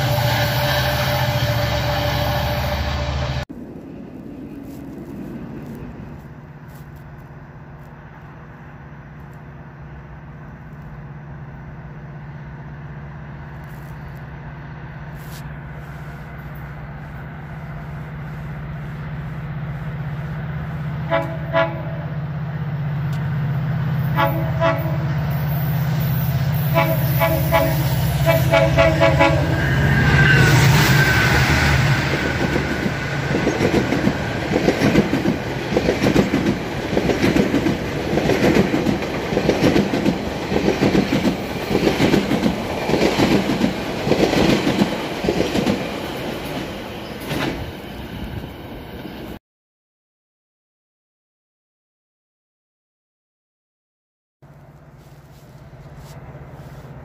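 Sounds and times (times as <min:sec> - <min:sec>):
train horn blasts: 0:00.0 - 0:03.5, 0:20.9 - 0:22.4, 0:24.0 - 0:32.2
diesel train engine drone: 0:00.0 - 0:49.4, 0:54.5 - 0:57.0
train wheels clattering over rail joints: 0:32.0 - 0:47.7.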